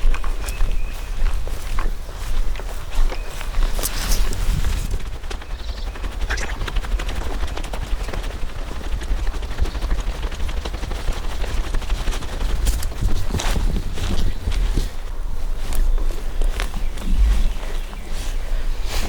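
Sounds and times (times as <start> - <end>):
footsteps crunching dry leaves: 0.0 - 6.6
low wind rumble on microphone: 0.0 - 19.0.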